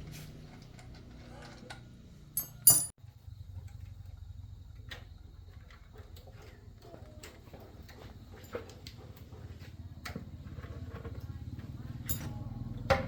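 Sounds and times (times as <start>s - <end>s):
sharp metallic clank: 2.4s - 3.0s.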